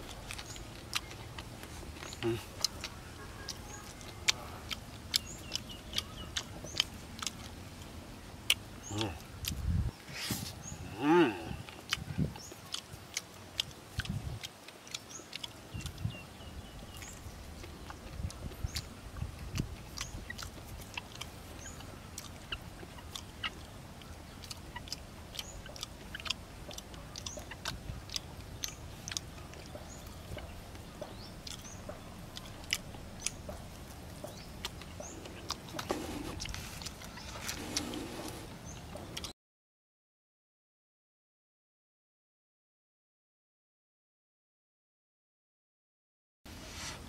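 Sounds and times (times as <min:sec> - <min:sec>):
man chewing crab: 0:00.0 - 0:09.7, 0:11.4 - 0:39.3.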